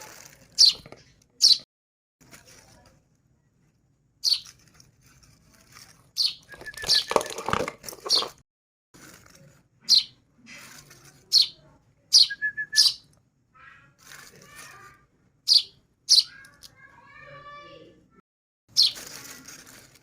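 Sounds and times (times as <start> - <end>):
baby birds begging chirps: 0.6 - 1.6, 4.2 - 4.6, 6.2 - 7.3, 9.8 - 10.2, 11.3 - 13.1, 15.5 - 16.7, 18.8 - 19.2
rapid bird trill: 4.2 - 4.5, 9.9 - 10.2, 11.3 - 13.1, 15.5 - 16.5, 18.7 - 19.1.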